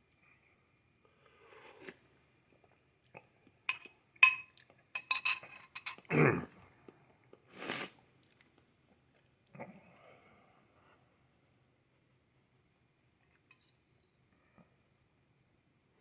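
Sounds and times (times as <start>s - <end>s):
metal spoon clinking on bowl: 3.7s - 6.1s, 13.5s - 13.8s.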